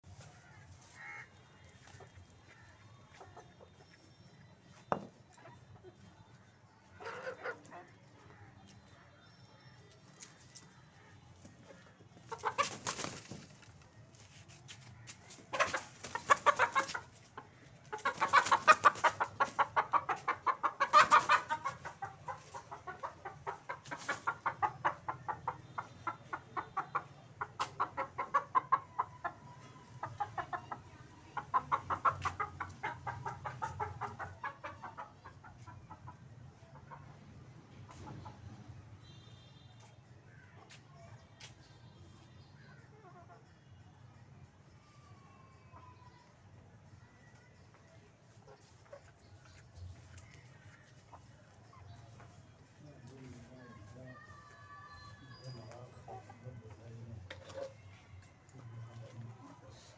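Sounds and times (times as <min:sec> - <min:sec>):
hen clucking: 0:15.5 - 0:36.9.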